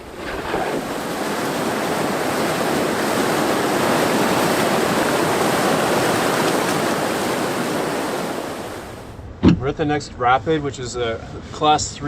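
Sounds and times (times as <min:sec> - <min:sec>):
river rapids rushing: 0:00.0 - 0:09.0.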